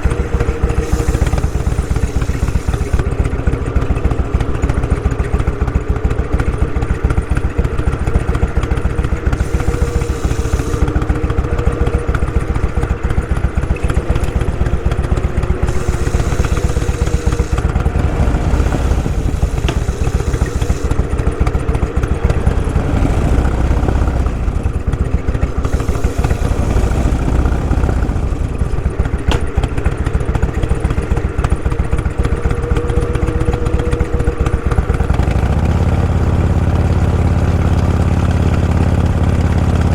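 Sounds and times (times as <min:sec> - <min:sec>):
rushing hiss: 0:00.0 - 0:04.5, 0:08.6 - 0:29.1
motorcycle engine running: 0:00.0 - 0:39.9.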